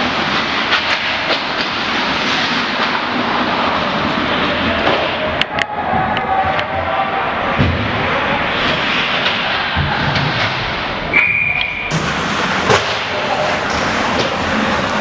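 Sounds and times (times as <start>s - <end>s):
ice rink din: 0.0s - 15.0s
puck and bodies hitting boards: 7.5s - 10.6s, 11.9s - 14.9s
referee's whistle blast: 11.1s - 11.9s.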